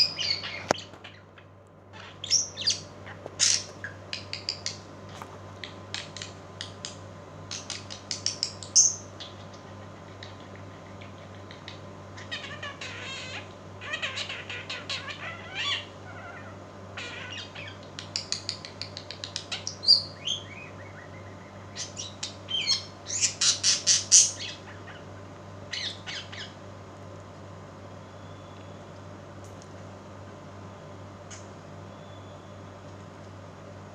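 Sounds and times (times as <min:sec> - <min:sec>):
small birds chirping and squawking: 0:00.0 - 0:26.7.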